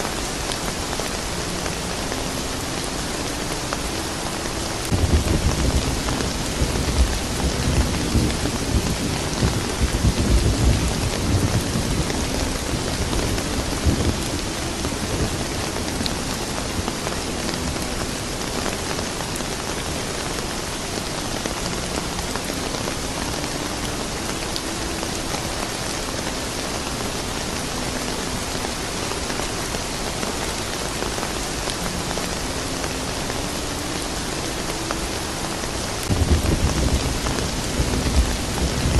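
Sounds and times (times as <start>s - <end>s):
steady rain: 0.0s - 38.9s
rolling thunder rumble: 4.9s - 16.9s, 36.1s - 38.9s.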